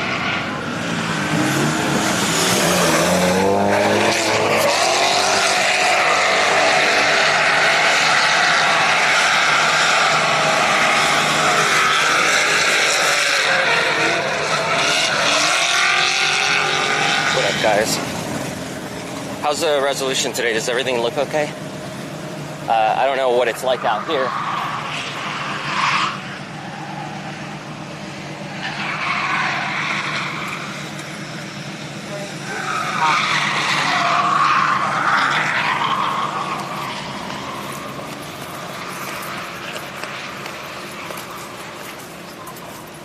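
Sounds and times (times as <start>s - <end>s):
car engines revving: 0.0s - 43.0s
tyres squealing: 28.3s - 31.3s, 32.0s - 43.0s.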